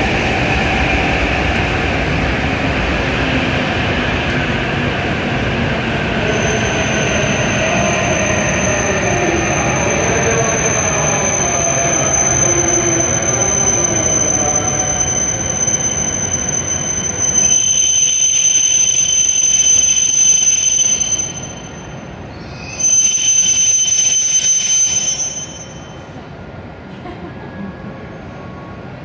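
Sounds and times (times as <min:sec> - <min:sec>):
train rumbling: 0:00.0 - 0:29.0
train brakes squealing: 0:05.6 - 0:26.5.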